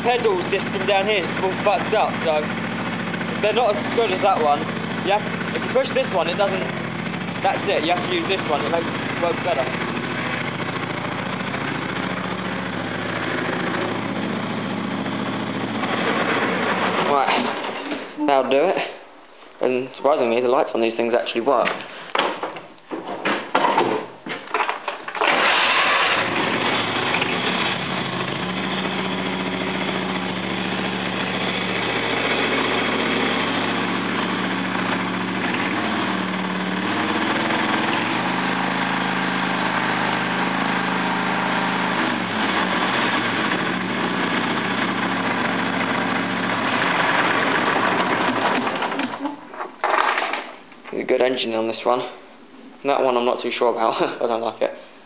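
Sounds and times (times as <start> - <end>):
lawn tractor engine running: 0.0 - 18.0, 24.6 - 49.2.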